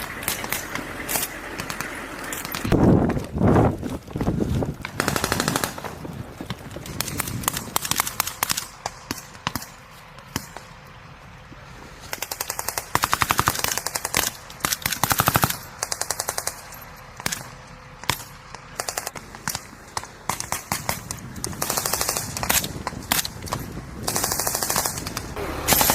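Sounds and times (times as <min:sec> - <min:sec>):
automatic gunfire bursts: 0:05.0 - 0:06.0, 0:12.1 - 0:17.4, 0:20.3 - 0:22.8, 0:24.0 - 0:25.9.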